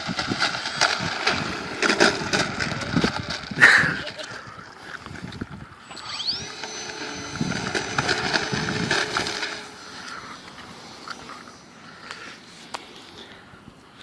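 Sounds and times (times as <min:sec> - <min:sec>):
model plane electric motor whining: 0:00.6 - 0:03.8, 0:05.8 - 0:10.7.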